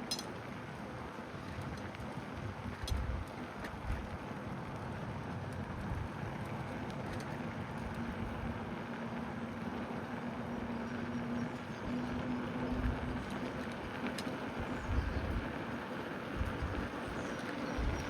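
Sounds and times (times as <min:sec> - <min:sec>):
low steady hum: 0:00.0 - 0:18.0
bicycle tyre noise: 0:00.8 - 0:18.0
rushing wind: 0:09.6 - 0:18.0.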